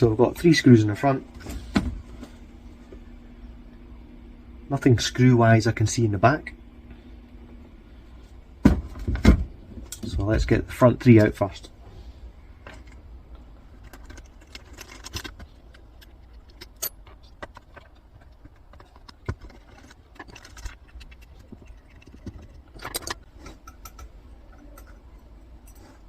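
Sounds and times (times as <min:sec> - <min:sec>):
low steady hum: 0:00.0 - 0:26.0
metal rattling: 0:13.7 - 0:25.9.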